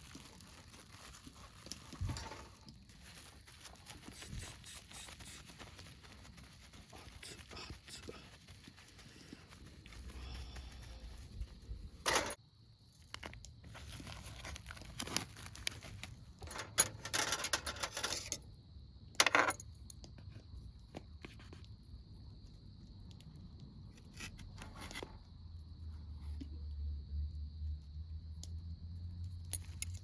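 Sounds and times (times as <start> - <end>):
gear rustling and scraping: 0.0 - 12.4, 13.0 - 18.4.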